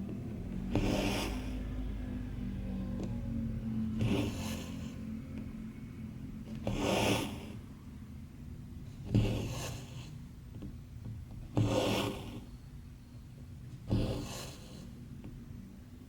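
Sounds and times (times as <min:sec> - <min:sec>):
thread rasping through fabric: 0:00.0 - 0:01.7, 0:06.4 - 0:07.6, 0:09.0 - 0:12.6.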